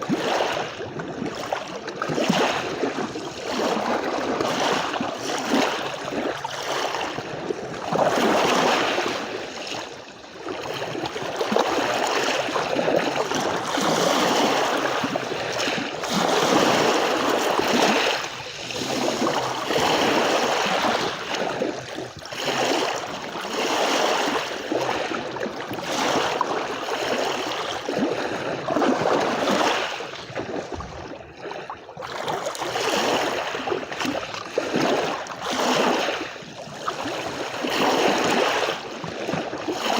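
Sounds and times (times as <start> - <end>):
sea waves washing onto beach: 0.0 - 30.9.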